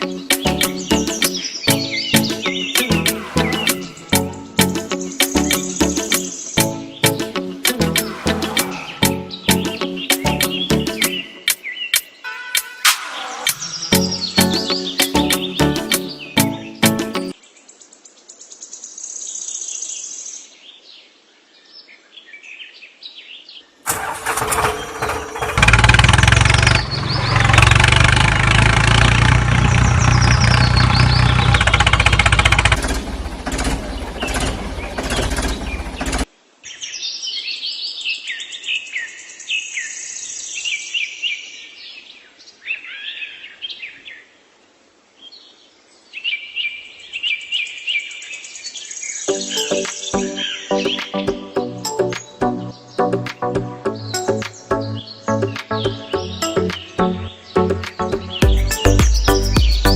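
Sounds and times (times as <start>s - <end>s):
birds chirping: 0.0s - 17.4s, 26.3s - 37.5s, 46.4s - 59.9s
loud deep mechanical noise: 23.9s - 36.3s.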